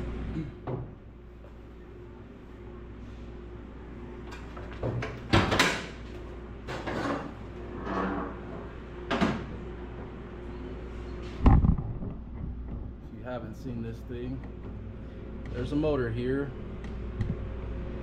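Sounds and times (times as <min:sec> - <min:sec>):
low electrical hum: 0:00.0 - 0:18.0
clunks and scrapes of handling: 0:06.7 - 0:08.7
heavy low thump: 0:11.4 - 0:13.1.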